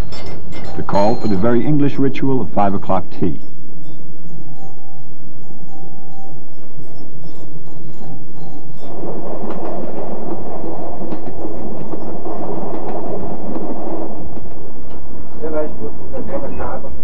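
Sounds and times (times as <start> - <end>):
faint hand-held chime notes: 0.0 - 9.1
train carriages rumbling and rattling: 0.0 - 17.0.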